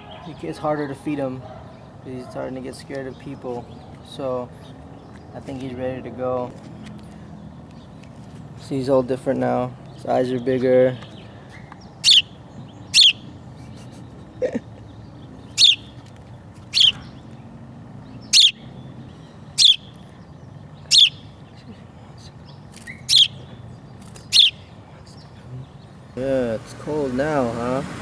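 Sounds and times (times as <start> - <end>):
young songbird chirping: 9.8 - 26.2.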